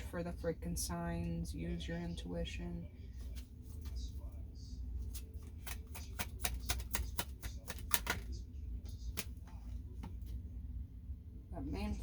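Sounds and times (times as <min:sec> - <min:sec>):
cards being shuffled: 0:05.0 - 0:08.4.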